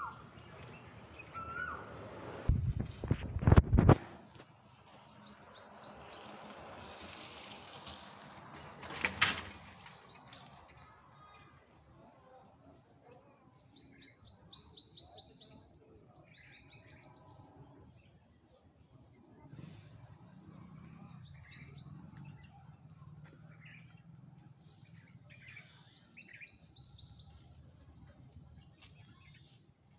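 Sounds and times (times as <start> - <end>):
small bird singing: 5.1 - 6.4, 13.6 - 27.8.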